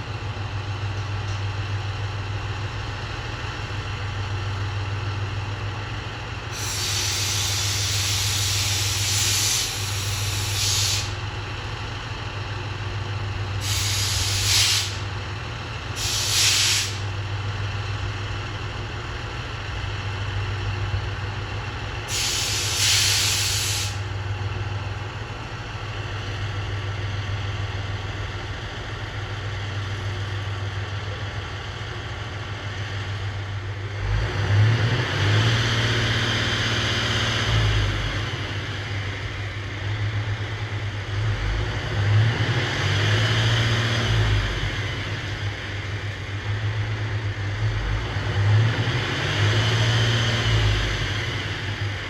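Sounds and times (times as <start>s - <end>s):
diesel engine idling: 0.0s - 52.0s
compressed air hisses: 6.5s - 11.2s, 13.6s - 15.0s, 16.0s - 17.0s, 22.1s - 24.0s
rush of engine noise: 27.8s - 52.0s.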